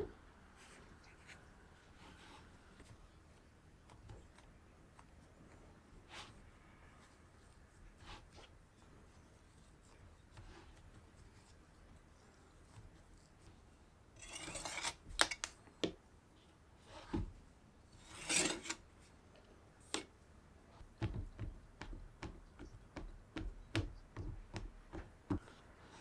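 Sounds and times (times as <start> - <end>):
utensil scraping strokes: 14.2 - 15.5, 18.0 - 18.8
light utensil taps and clicks: 21.0 - 25.6.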